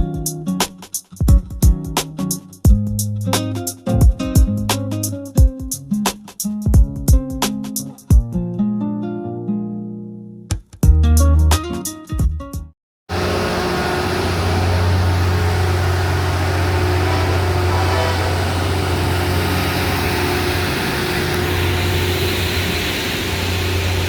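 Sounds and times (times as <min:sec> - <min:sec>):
vehicle engine hum: 0:13.1 - 0:24.0.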